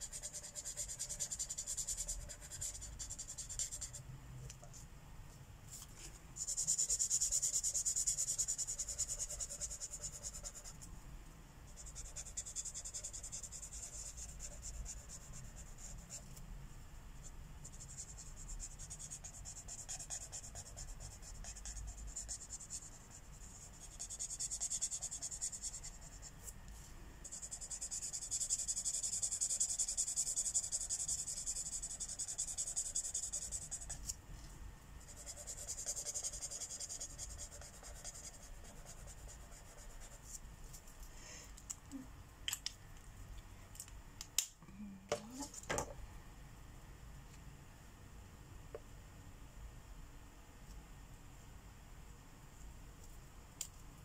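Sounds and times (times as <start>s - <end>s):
marker rubbing on paper: 0.0s - 4.0s, 6.4s - 10.8s, 11.8s - 16.2s, 17.2s - 26.3s, 27.3s - 34.1s, 35.0s - 40.9s.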